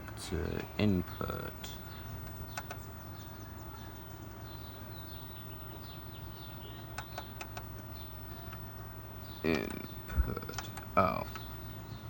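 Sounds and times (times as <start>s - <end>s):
small birds chirping: 0.0s - 12.0s
steady low hum: 0.0s - 12.0s
sharp clicks: 2.2s - 2.9s, 6.9s - 7.9s.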